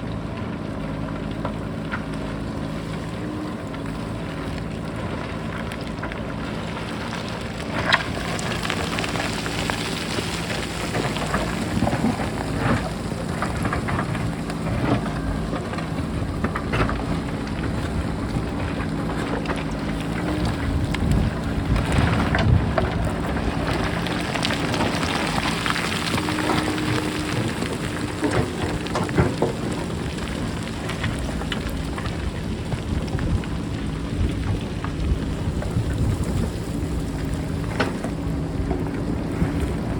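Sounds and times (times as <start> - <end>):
diesel engine running: 0.0 - 39.9
rocks clattering and rolling: 0.2 - 39.9
wind noise: 20.2 - 39.9.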